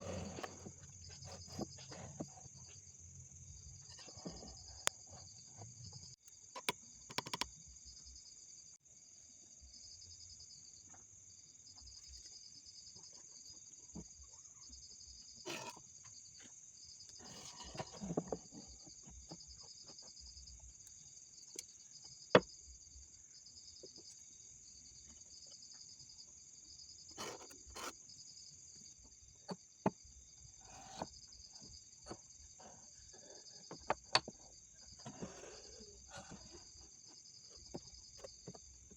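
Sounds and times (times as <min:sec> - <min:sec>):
insects chirping: 0:00.0 - 0:38.9
wood knocking and tapping: 0:33.7 - 0:34.4.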